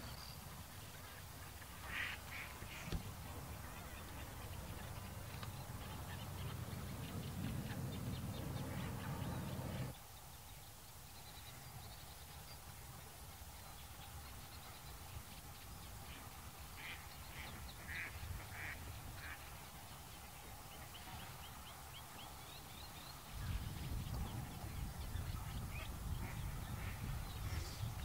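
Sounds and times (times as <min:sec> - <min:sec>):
low rumble: 0:03.0 - 0:09.9.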